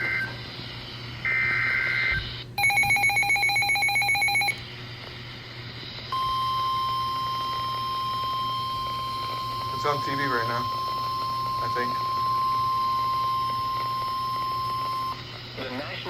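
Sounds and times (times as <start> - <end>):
steady single-pitch alarm tone: 1.2 - 4.6, 6.1 - 15.2
warbling data tones: 6.1 - 15.7
rapidly pulsing electronic beep: 6.2 - 15.2.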